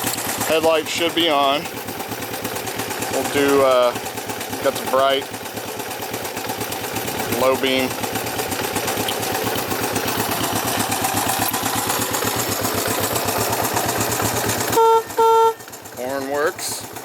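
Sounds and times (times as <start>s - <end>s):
motorcycle engine idling: 0.0s - 17.0s
motorcycle horn beeps: 14.7s - 15.7s.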